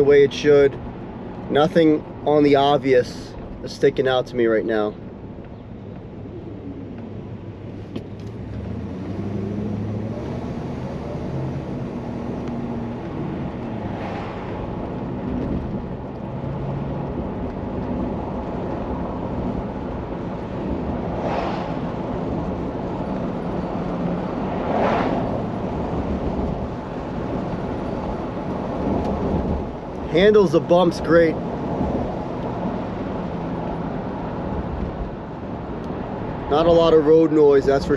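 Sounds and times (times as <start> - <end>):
road and tyre noise: 0.0 - 37.9
car engine from inside cabin: 5.1 - 30.1.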